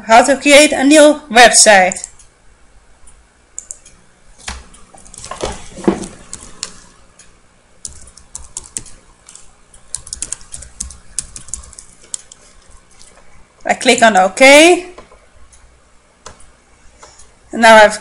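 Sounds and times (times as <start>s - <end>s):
keyboard typing clicks: 1.9s - 2.3s, 3.6s - 13.1s.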